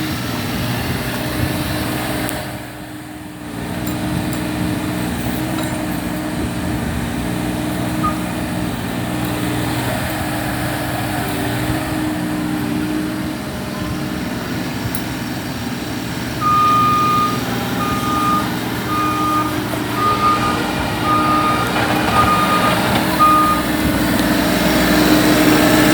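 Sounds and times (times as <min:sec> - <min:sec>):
diesel engine running: 0:00.0 - 0:25.9
travel alarm beeping: 0:08.0 - 0:08.4, 0:16.4 - 0:23.7.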